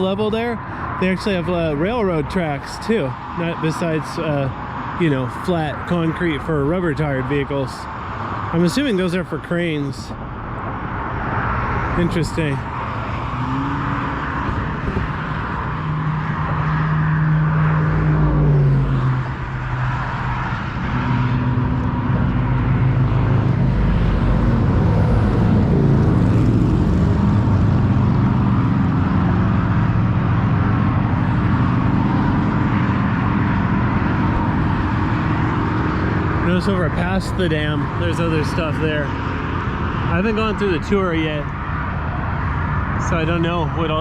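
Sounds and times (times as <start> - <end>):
traffic noise: 0.0 - 44.0
vehicle engines droning: 0.0 - 44.0.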